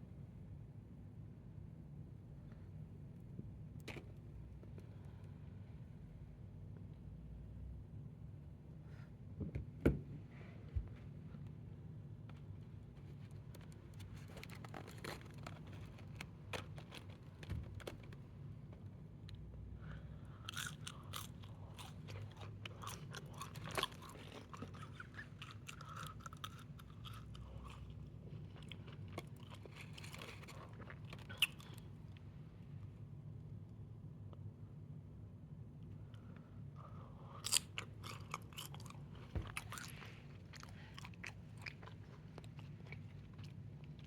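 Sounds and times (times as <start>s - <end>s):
crunchy chewing: 12.4s - 18.2s, 19.8s - 32.2s, 36.9s - 44.0s.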